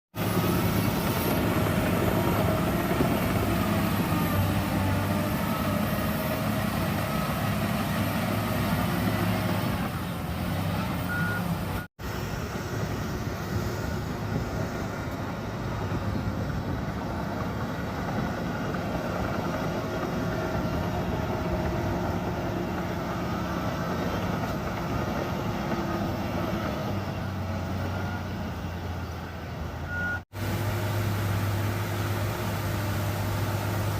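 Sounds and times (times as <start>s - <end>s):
bulldozer diesel engine running: 0.2s - 33.9s.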